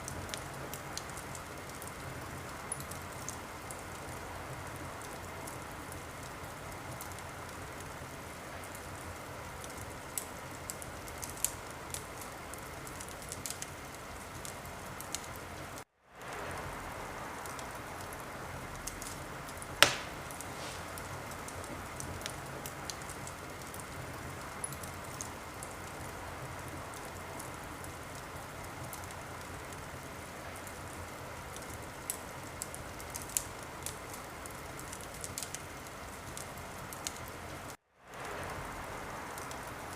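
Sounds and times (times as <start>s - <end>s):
wood fire crackling: 0.0s - 39.9s
loud sharp pop: 19.8s - 21.0s.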